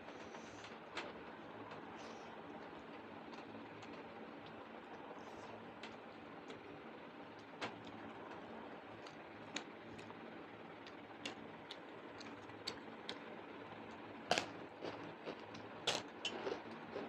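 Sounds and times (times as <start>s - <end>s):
low background hum: 0.0s - 17.0s
eating clicks and smacks: 9.0s - 10.2s, 10.8s - 13.3s, 14.3s - 17.0s
person chewing food: 14.3s - 17.0s.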